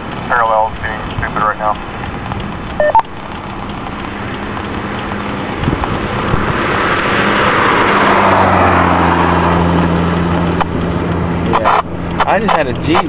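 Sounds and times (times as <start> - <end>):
low steady hum: 0.0 - 6.4
radio interference rushing noise: 0.2 - 7.2, 11.4 - 13.0.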